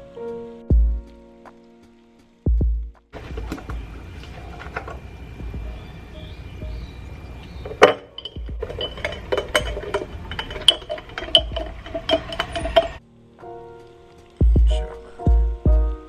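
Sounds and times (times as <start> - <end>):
tableware clinking: 7.6 - 13.0.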